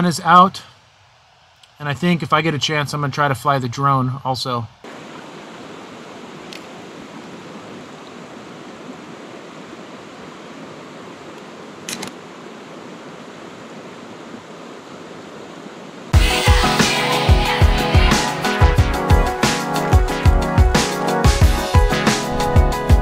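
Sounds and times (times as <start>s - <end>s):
flowing river water: 4.8s - 18.8s, 21.6s - 23.0s.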